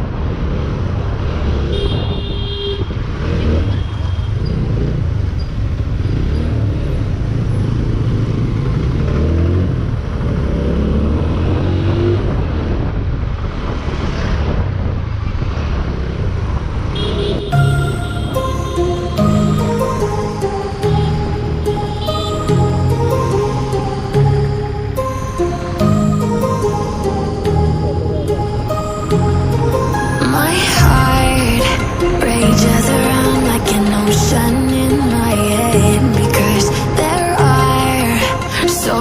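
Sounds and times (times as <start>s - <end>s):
motorcycle engine and road noise: 0.0s - 39.0s
traffic: 0.0s - 39.0s
wind rumble on microphone: 11.3s - 17.0s.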